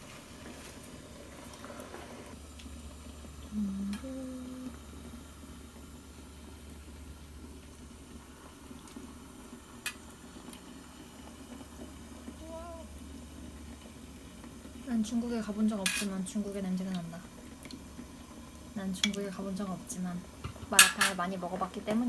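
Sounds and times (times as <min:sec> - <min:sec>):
broth boiling in a pot: 0:00.0 - 0:22.0
steady low hum: 0:02.3 - 0:09.7
person humming a note: 0:03.5 - 0:04.8, 0:12.4 - 0:12.9.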